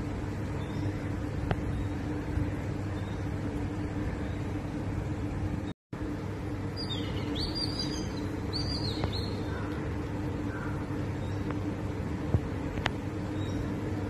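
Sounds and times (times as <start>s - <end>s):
low hum: 0.0s - 14.0s
small bird chirping: 6.8s - 9.8s.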